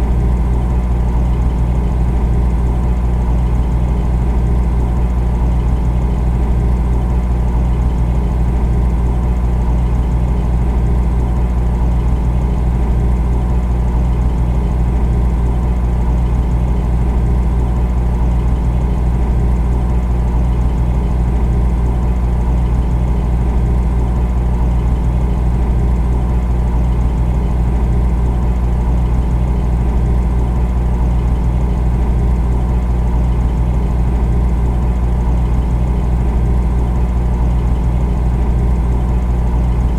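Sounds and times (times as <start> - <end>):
refrigerator humming: 0.0 - 39.9.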